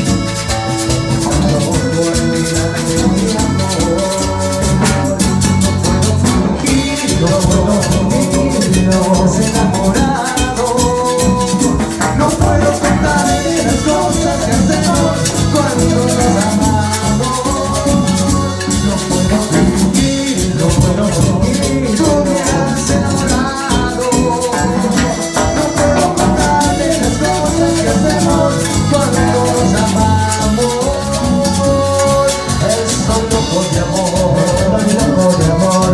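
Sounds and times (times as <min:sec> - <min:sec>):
latin dance band playing: 0:00.0 - 0:35.9.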